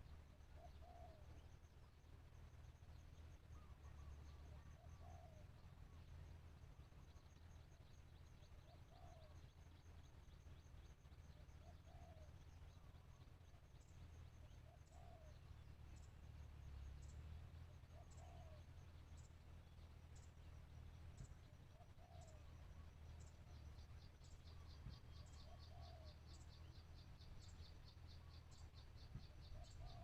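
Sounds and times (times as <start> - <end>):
dove cooing faintly: 0.0 - 1.5, 3.5 - 7.2, 8.6 - 9.6, 11.3 - 13.5, 14.4 - 15.6, 17.7 - 19.0, 21.2 - 30.0.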